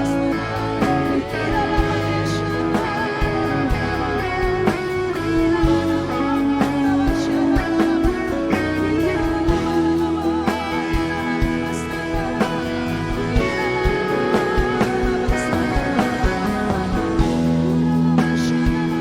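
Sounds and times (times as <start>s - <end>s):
band playing instrumental music: 0.0s - 19.0s.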